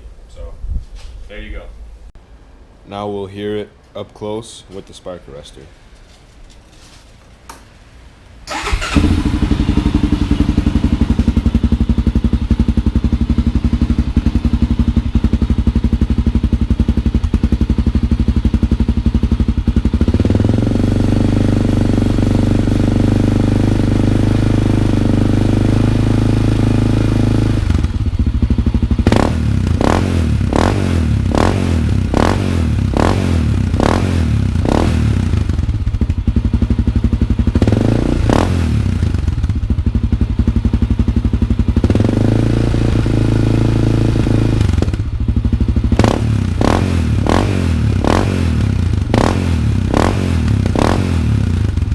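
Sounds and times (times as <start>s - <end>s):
engine throttle blips: 8.5s - 15.6s
motorcycle engine idling: 8.5s - 51.9s.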